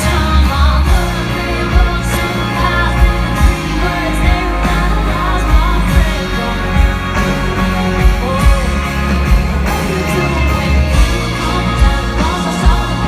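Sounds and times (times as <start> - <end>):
drums steady beat: 0.0 - 13.0
live pop-rock band playing: 0.0 - 13.0.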